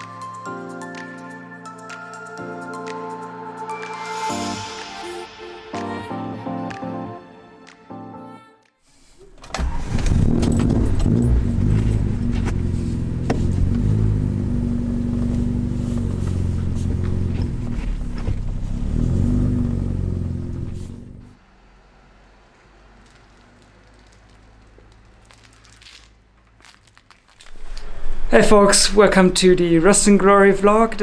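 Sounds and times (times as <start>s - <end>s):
car engine starting and running: 9.0s - 23.8s, 27.4s - 31.0s.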